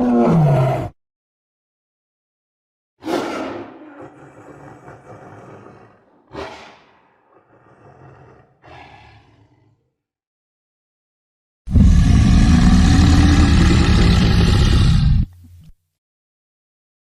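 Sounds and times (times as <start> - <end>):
tiger roaring: 0.0 - 0.9, 3.0 - 10.0, 11.7 - 15.3.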